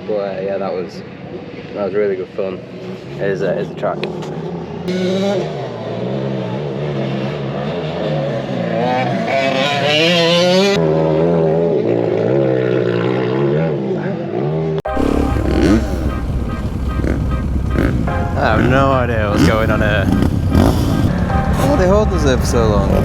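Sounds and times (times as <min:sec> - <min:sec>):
dirt bike engines revving: 0:14.9 - 0:23.0
rough engine rumble: 0:14.9 - 0:23.0.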